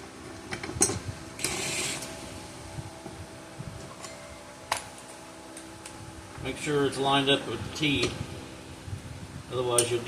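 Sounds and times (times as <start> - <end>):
faint steady hum: 0.0 - 10.0
metal scrape: 1.4 - 2.3.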